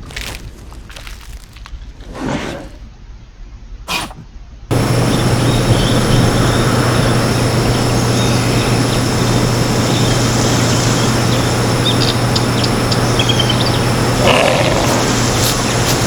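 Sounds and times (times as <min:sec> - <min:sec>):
constant low hum: 0:04.2 - 0:16.0
bird chirps and trill: 0:04.7 - 0:16.0.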